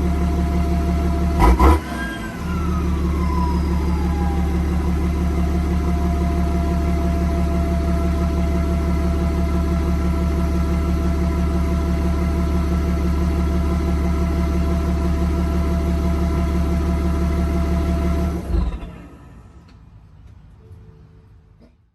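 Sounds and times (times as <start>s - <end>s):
diesel engine idling: 0.0s - 20.3s.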